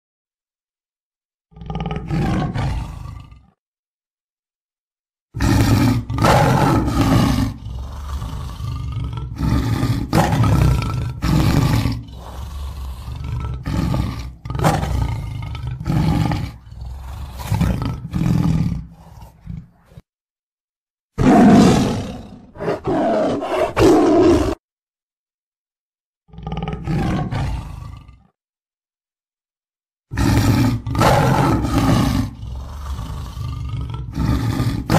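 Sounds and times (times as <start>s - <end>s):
tiger roaring: 1.5s - 3.6s, 5.4s - 20.0s, 21.2s - 24.6s, 26.3s - 28.4s, 30.1s - 34.9s.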